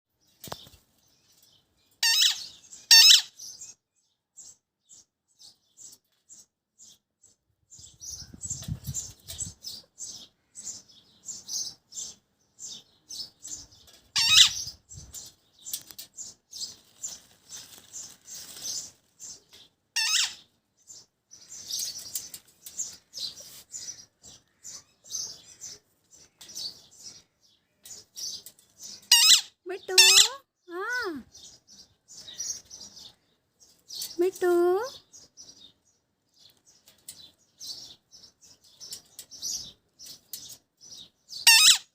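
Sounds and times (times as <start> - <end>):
parrot squawking: 2.0 - 3.3, 14.2 - 14.6, 20.0 - 20.4, 29.1 - 30.4, 41.4 - 41.9.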